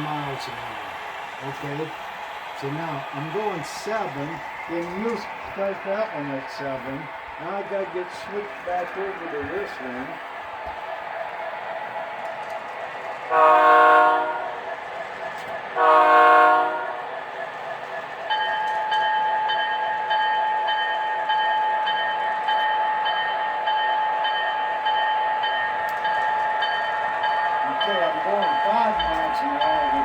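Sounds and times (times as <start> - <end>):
hum of model trains running: 0.0 - 30.0
locomotive bell ringing: 2.6 - 10.2, 18.3 - 30.0
model locomotive horn blasts: 13.3 - 14.6, 15.8 - 17.0.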